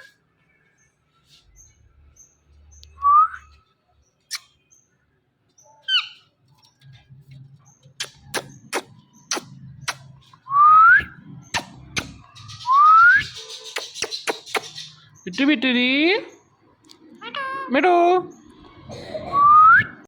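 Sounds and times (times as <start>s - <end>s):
sharp clicks: 11.5s - 12.3s.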